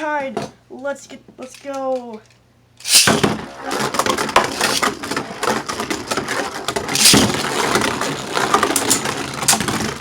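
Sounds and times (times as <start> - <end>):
spinning tops clashing: 2.8 - 3.3, 4.5 - 4.9, 7.0 - 7.5.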